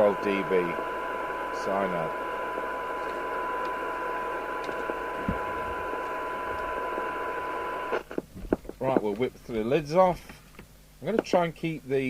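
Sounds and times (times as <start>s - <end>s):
steady test tone: 0.0s - 8.1s
radio hiss: 0.0s - 8.2s.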